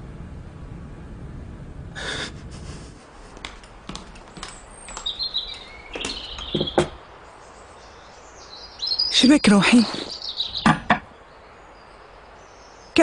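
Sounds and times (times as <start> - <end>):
low rumble: 0.0 - 7.3
small birds chirping: 3.2 - 13.0
sharp knocks: 3.4 - 7.0, 10.6 - 11.1.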